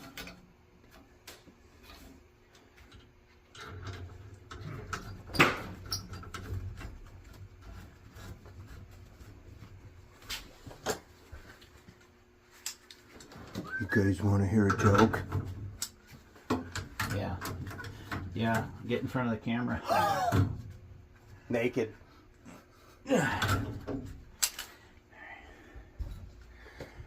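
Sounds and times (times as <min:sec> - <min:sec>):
clicks and knocks of tools: 0:00.0 - 0:07.8, 0:12.5 - 0:13.6, 0:23.4 - 0:24.8.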